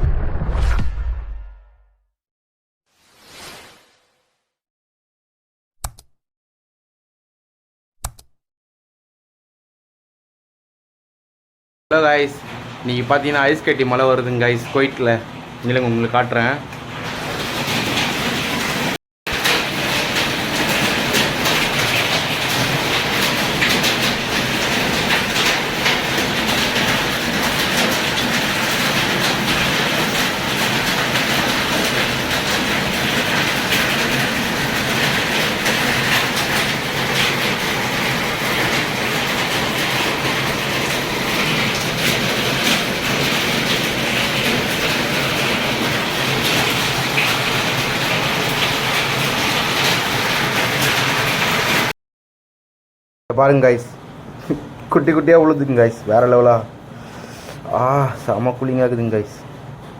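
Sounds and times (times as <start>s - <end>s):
rain hissing: 17.0s - 51.9s
hail clattering: 17.4s - 51.9s.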